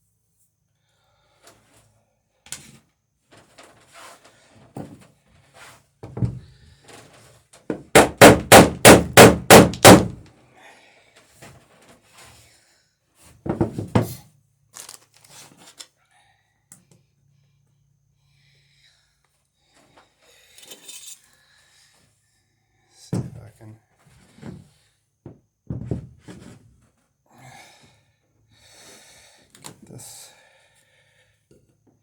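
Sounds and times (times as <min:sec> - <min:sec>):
hammer striking wood: 0:07.7 - 0:10.2.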